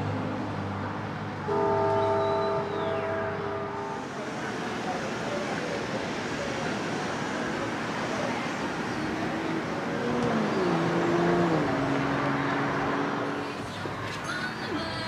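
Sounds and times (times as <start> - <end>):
road traffic noise: 0.0 - 15.0
vehicle passing by: 8.0 - 14.0.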